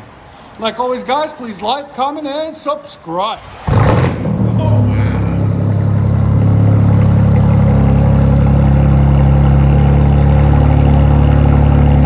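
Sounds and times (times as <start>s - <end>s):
car engine idling: 3.4s - 12.0s.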